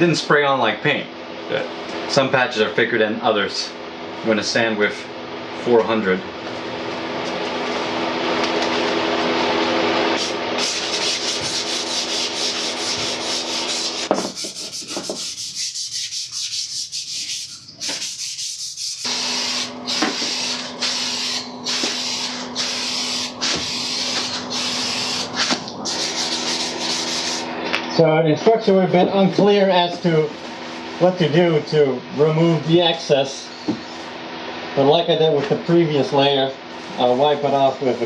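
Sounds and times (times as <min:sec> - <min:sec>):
sandpaper sanding plastic: 0:10.2 - 0:27.4.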